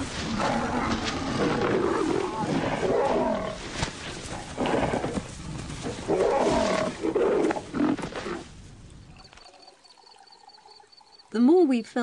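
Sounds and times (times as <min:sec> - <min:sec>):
lions growling: 0:00.1 - 0:08.4.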